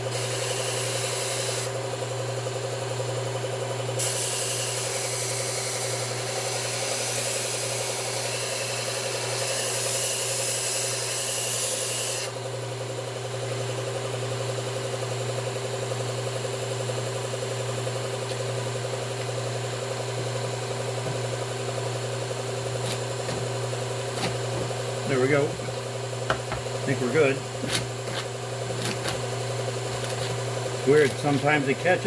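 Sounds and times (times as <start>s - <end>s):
blade grinding on belt: 0.1s - 1.8s, 4.0s - 12.3s, 21.0s - 32.0s
belt sharpener motor running: 4.0s - 12.7s, 16.8s - 32.0s.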